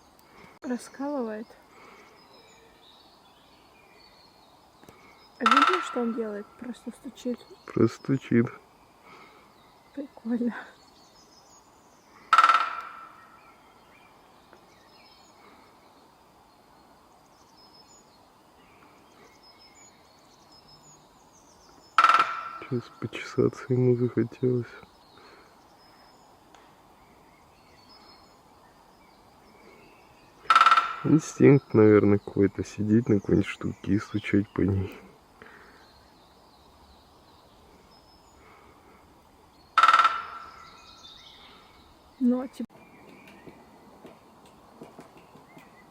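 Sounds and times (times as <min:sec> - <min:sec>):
faint bird calls: 0:00.0 - 0:17.0, 0:17.6 - 0:45.9
woodpecker drumming: 0:04.8 - 0:09.4, 0:12.1 - 0:13.6, 0:21.8 - 0:25.5, 0:30.2 - 0:35.8, 0:39.6 - 0:41.7, 0:42.8 - 0:45.9.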